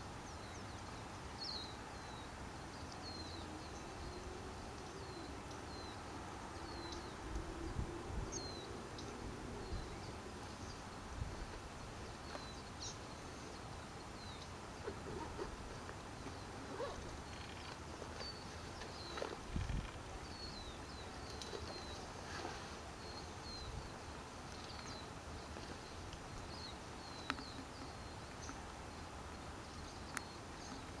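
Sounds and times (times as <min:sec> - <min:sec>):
background hiss: 0:00.0 - 0:31.0.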